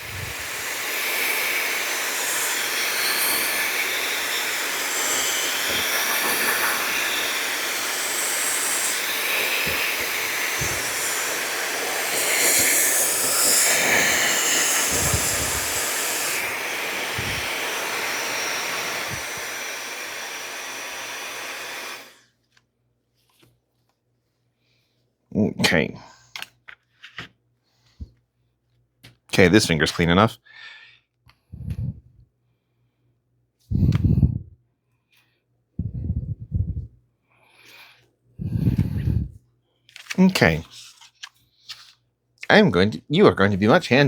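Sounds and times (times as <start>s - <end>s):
hair dryer blowing: 0.0s - 22.2s, 33.7s - 34.4s, 35.8s - 36.9s, 38.4s - 39.3s.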